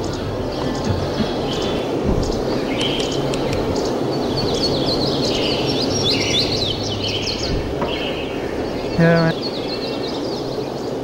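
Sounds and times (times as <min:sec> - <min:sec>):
birds chirping: 0:00.0 - 0:11.0
steady background hiss: 0:00.0 - 0:11.0.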